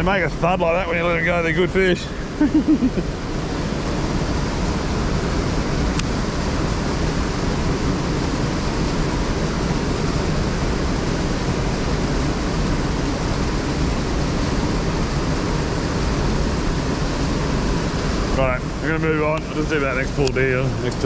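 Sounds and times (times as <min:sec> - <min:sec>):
river water rushing over rocks: 0:00.9 - 0:21.0.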